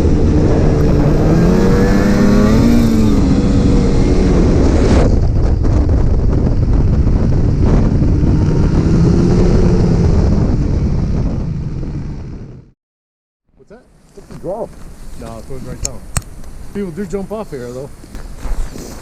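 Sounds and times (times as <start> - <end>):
snowmobile engine running: 0.0 - 12.7
wind on microphone: 0.0 - 12.7, 14.4 - 19.0.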